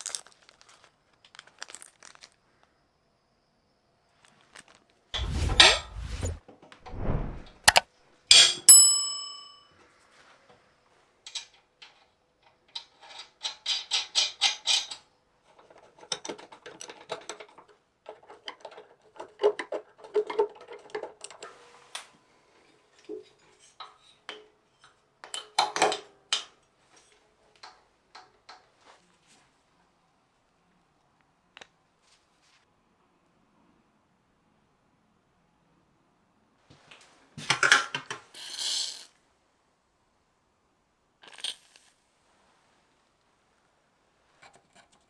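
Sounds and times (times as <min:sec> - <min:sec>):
metal clatter: 0:05.2 - 0:07.8.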